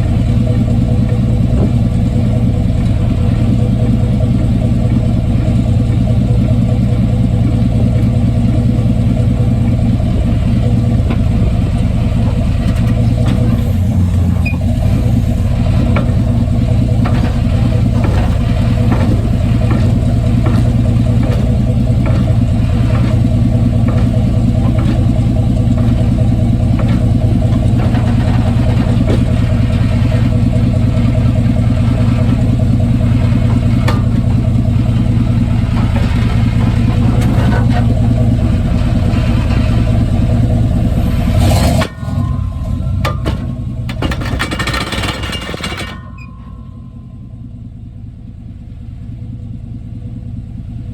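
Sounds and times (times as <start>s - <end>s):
truck engine running: 0.0s - 50.9s
knocks and clicks: 10.9s - 31.3s.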